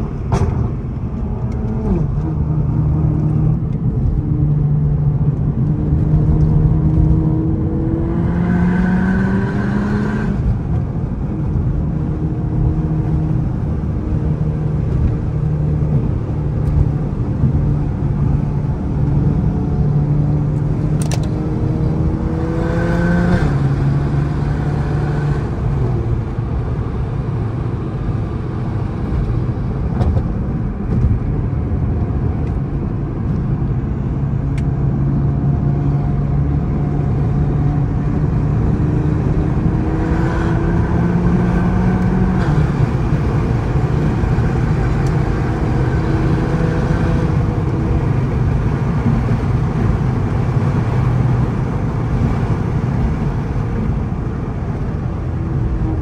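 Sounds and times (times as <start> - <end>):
car engine revving from inside cabin: 1.3 - 10.8, 11.4 - 26.6, 34.2 - 54.2.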